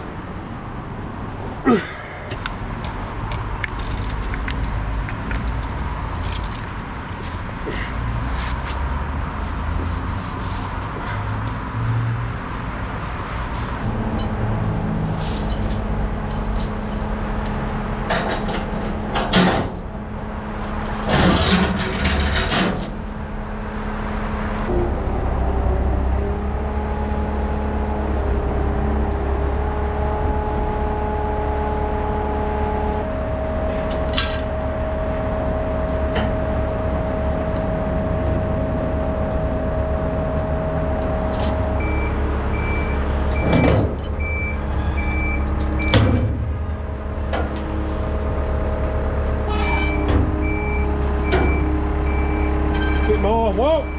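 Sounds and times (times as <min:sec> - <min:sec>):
truck diesel engine running: 0:12.2 - 0:53.9
reversing beeper: 0:41.7 - 0:46.2, 0:49.5 - 0:53.9.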